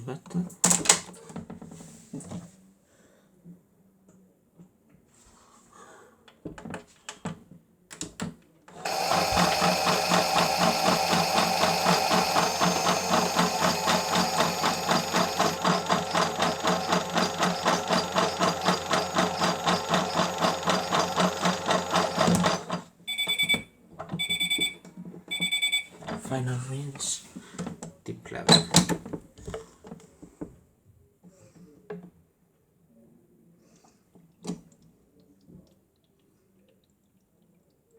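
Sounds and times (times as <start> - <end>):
toy washing machine motor buzzing: 8.8 - 22.9.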